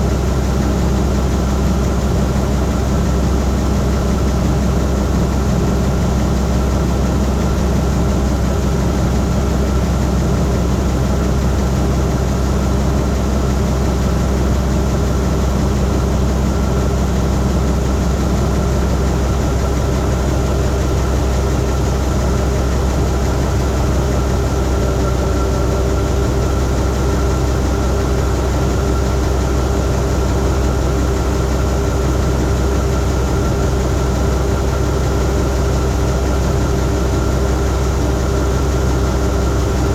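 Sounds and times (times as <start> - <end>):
combine diesel engine droning: 0.0 - 39.9.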